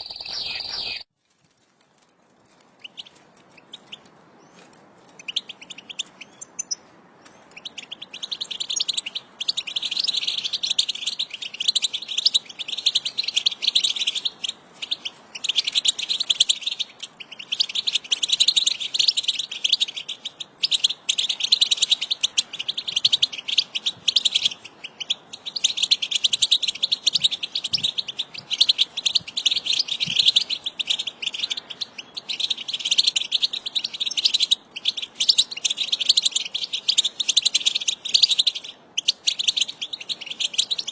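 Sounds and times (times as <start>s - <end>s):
goldfinches twittering: 0.0s - 1.0s.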